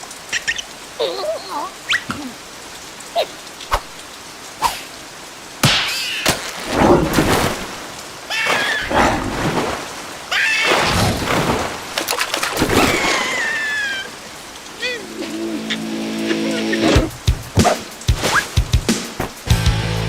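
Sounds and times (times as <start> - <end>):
cartoon rain falling: 0.0 - 20.0
squeaky cartoon character vocals: 14.8 - 16.8.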